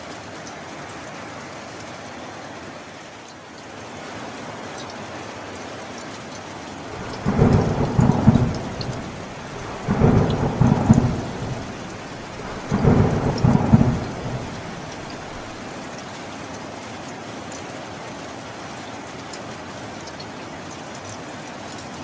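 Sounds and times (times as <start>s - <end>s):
steady rain: 0.0s - 22.0s
thunder rolling: 6.9s - 15.6s.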